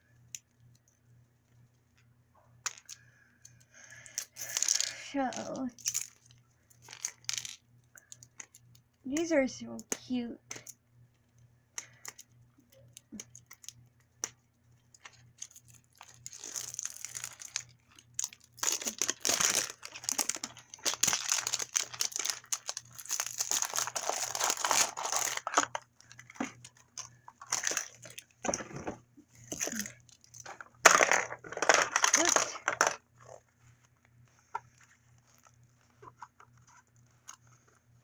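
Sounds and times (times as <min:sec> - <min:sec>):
packaging crackling and rustling: 0:14.9 - 0:28.6.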